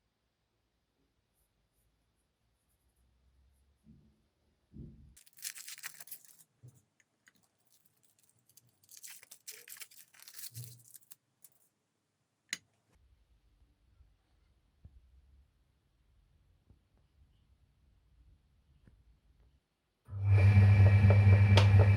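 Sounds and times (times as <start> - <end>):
wrapper tearing and crumpling: 5.2 - 6.4, 7.6 - 11.6.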